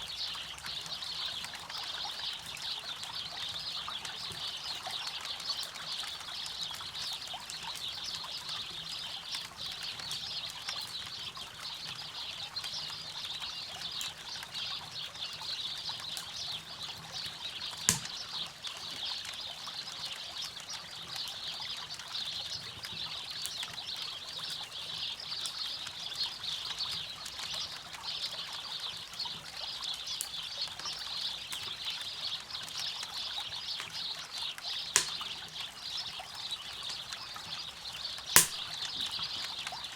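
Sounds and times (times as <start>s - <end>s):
campfire crackling: 17.6s - 18.4s, 34.8s - 35.6s, 38.2s - 39.7s
loud pop from fire: 17.9s - 18.1s, 35.0s - 35.2s, 38.4s - 38.7s.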